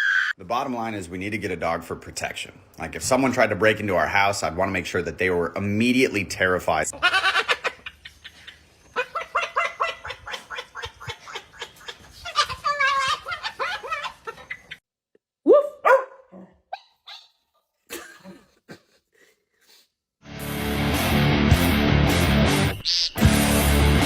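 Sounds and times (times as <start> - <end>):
dog barking: 15.6 - 16.6.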